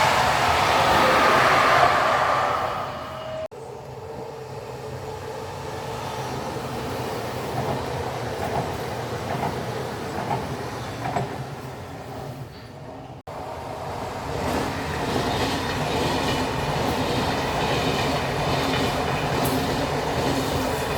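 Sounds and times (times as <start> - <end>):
train rumbling past: 0.0 - 20.9
wheels clacking over rail joints: 14.4 - 20.9.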